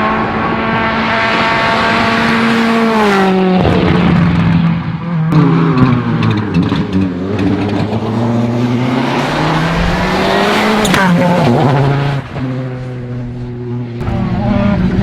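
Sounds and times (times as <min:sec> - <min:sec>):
rally car engine accelerating: 0:00.0 - 0:15.0
gear shift crack: 0:05.3 - 0:08.4.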